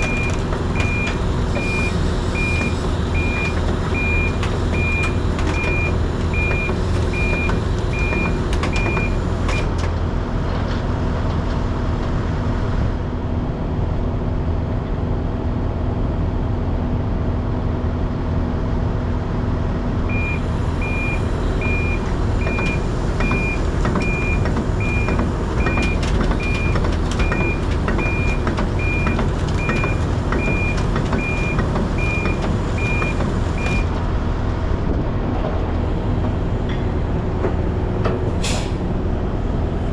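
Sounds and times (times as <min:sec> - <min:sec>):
back-up alarm beeping: 0:00.0 - 0:09.7, 0:20.1 - 0:33.9
truck diesel engine running: 0:00.0 - 0:11.0, 0:19.5 - 0:39.9.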